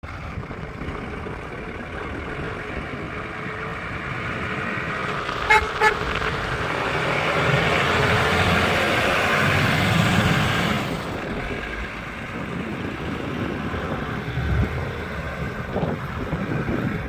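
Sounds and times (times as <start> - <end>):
vehicle engine running: 0.0 - 17.0
horn toots: 5.5 - 6.1.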